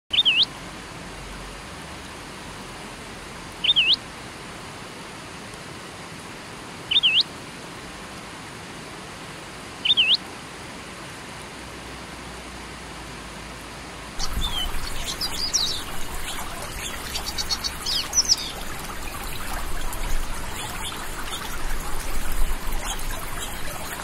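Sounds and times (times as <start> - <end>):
songbird call: 0.1 - 0.5, 3.6 - 4.0, 6.9 - 7.3, 9.8 - 10.2, 14.2 - 24.0
river flowing over rocks: 13.6 - 24.0.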